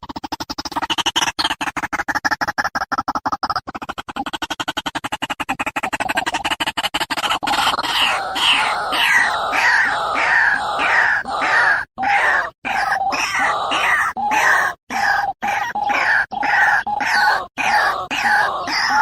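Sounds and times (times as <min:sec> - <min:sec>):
bird fast pulsing chatter: 0:00.0 - 0:19.0
bird harsh croaking calls: 0:03.9 - 0:19.0.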